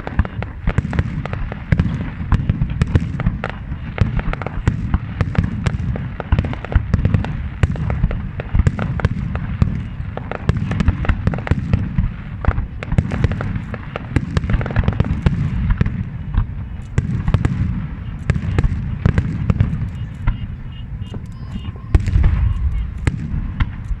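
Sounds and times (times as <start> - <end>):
fireworks cracks and bangs: 0.0 - 24.0
low booming rumble: 14.4 - 24.0.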